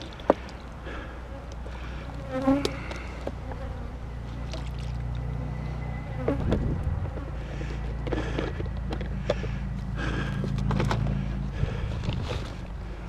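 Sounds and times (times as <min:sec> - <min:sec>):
honeybees buzzing: 0:00.0 - 0:10.4.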